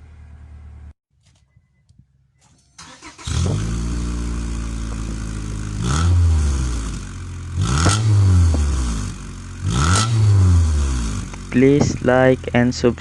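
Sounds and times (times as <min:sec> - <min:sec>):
engine revving: 0:02.8 - 0:13.0
car engine exhaust note: 0:02.9 - 0:13.0.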